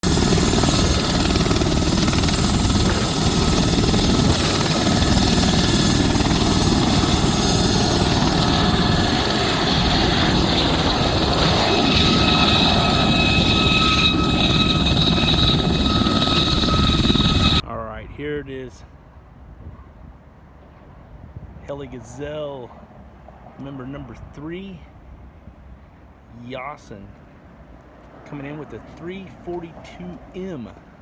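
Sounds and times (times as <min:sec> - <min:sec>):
helicopter flying: 0:00.0 - 0:17.6
high turbine whine: 0:00.0 - 0:17.6.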